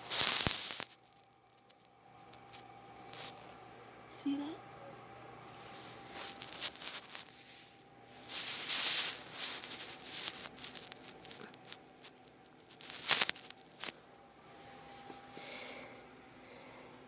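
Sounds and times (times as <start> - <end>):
rustling and crinkling: 0.0 - 3.4, 5.6 - 15.4.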